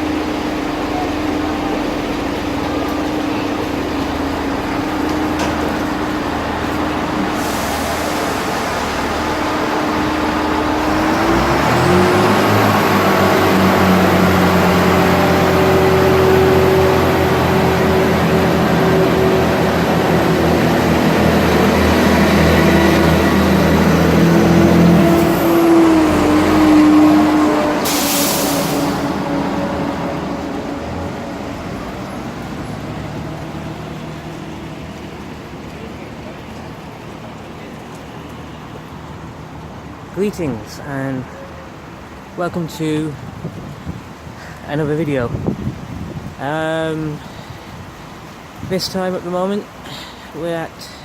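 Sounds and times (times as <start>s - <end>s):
high engine whine: 0.0s - 37.0s
diesel train engine revving: 0.0s - 44.7s.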